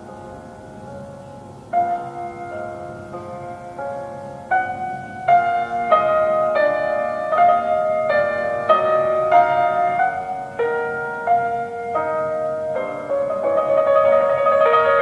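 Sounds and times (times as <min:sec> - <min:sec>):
slow gentle solo piano: 0:00.0 - 0:15.0.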